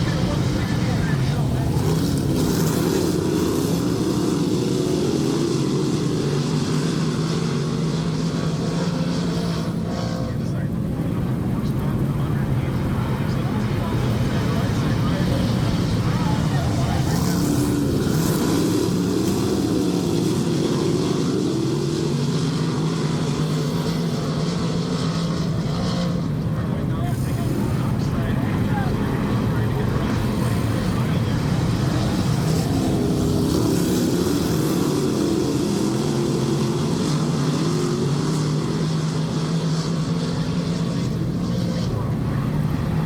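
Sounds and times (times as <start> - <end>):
race car engines: 0.0 - 43.0.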